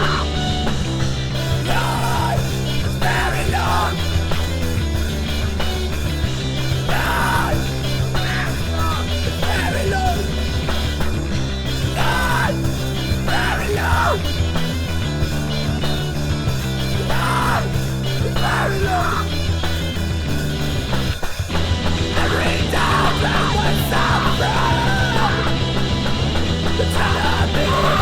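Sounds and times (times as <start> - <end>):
loud rock band music: 0.0 - 28.0
steady bass line: 0.0 - 28.0
short yelled vocals: 1.4 - 4.2, 6.8 - 10.6, 11.9 - 14.4, 17.0 - 19.4, 22.1 - 25.9, 26.6 - 28.0.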